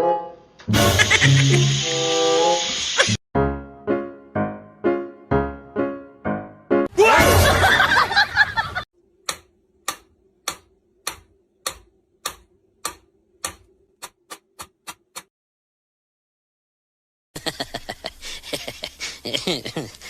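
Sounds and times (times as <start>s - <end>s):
sharp ticks: 9.3s - 15.3s.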